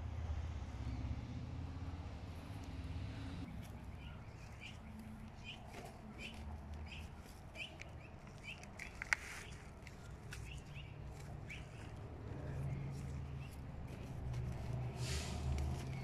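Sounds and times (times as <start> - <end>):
bird chirping: 3.1 - 14.9.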